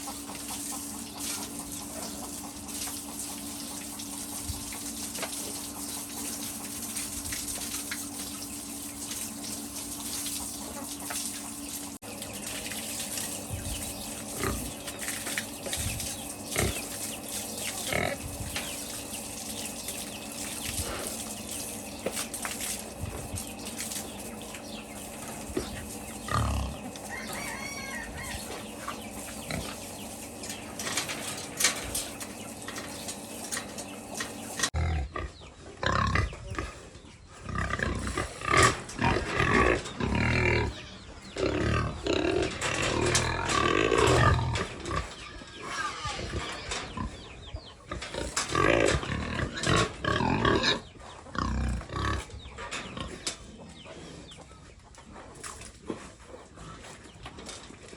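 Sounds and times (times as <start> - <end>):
hens clucking: 0.0 - 57.7
pigs grunting and squealing: 13.1 - 54.3.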